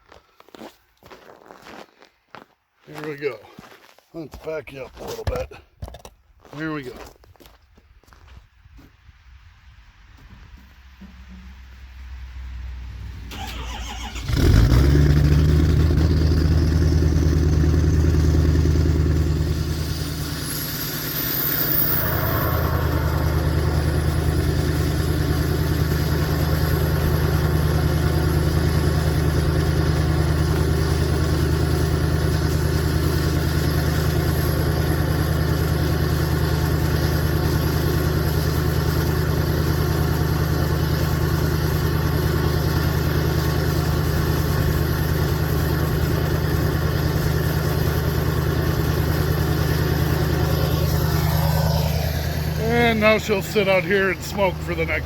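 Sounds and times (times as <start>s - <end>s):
diesel engine starting and idling: 11.0s - 55.0s
high engine whine: 11.0s - 55.0s.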